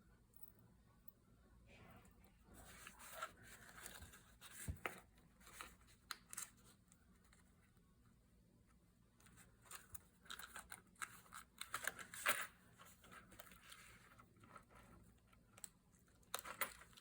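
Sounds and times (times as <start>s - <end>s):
paper rustling and crinkling: 2.6s - 6.8s.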